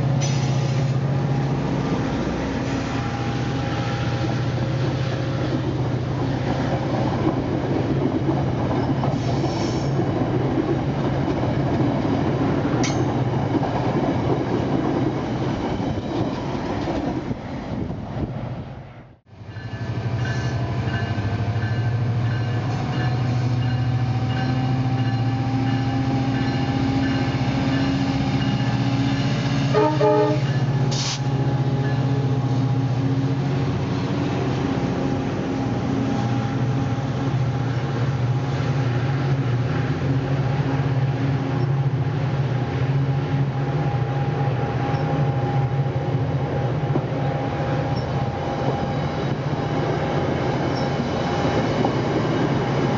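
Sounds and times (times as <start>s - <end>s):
locomotive engine hum: 0.0s - 52.9s
train horn: 29.6s - 32.4s.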